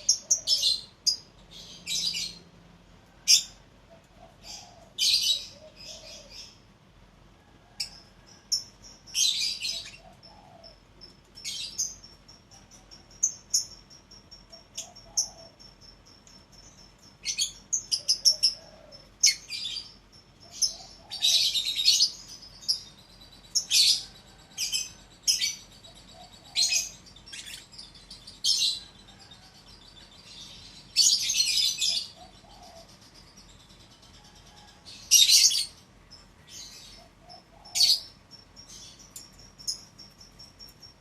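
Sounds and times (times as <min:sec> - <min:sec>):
harsh bird calls: 0:00.0 - 0:41.0
lovebirds chirping: 0:00.0 - 0:41.0.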